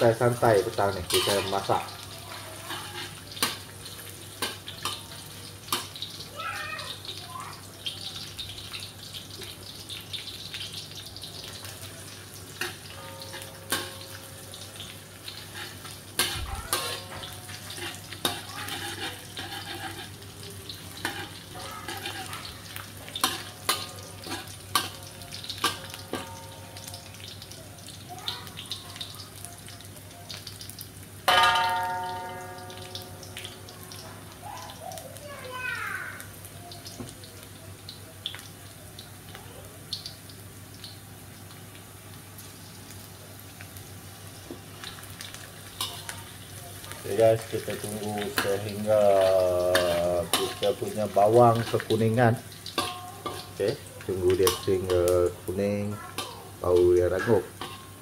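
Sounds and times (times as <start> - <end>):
shallots and garlic sizzling in oil: 0.0 - 58.0
metal spatula scraping a wok: 1.0 - 1.8, 2.5 - 5.0, 12.5 - 26.9, 45.8 - 53.6, 57.2 - 58.0.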